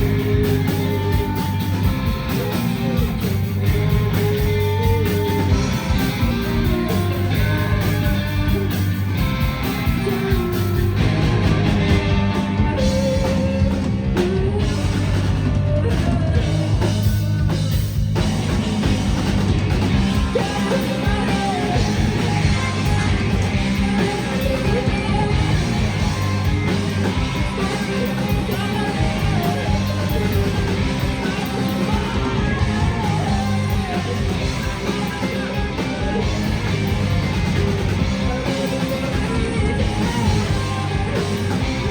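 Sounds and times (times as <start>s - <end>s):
live rock band playing: 0.0s - 41.9s
person singing: 20.2s - 41.9s.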